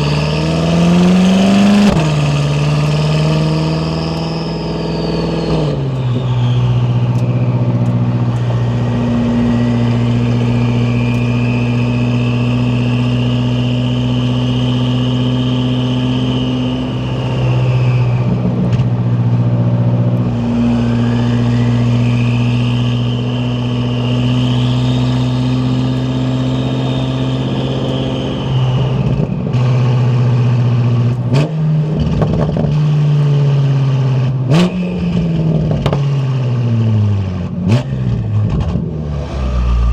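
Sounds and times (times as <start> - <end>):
car engine low drone: 0.0 - 32.4, 33.4 - 39.9
high whine: 38.7 - 39.9.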